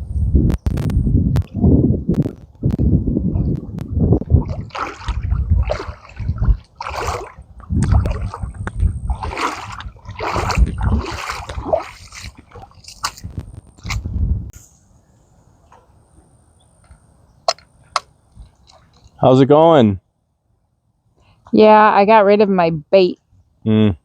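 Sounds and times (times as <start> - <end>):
river water splashing: 4.4 - 14.0, 17.5 - 19.2.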